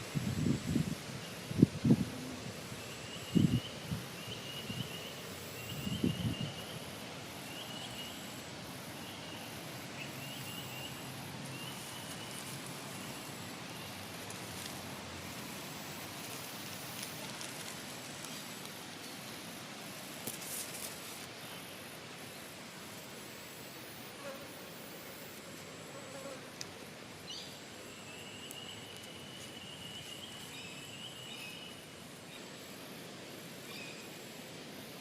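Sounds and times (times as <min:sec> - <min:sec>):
faint ticks: 0:26.5 - 0:26.8.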